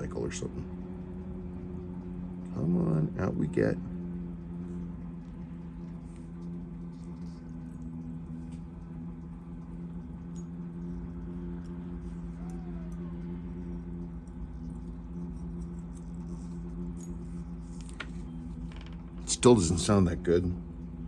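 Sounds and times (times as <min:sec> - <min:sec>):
small engine humming: 0:00.0 - 0:21.0.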